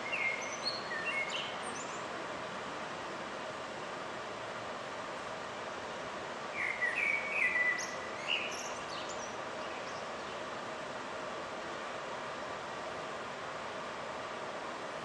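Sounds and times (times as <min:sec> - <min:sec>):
bird chirping: 0:00.0 - 0:02.0, 0:06.6 - 0:10.4
city background noise: 0:00.0 - 0:15.0.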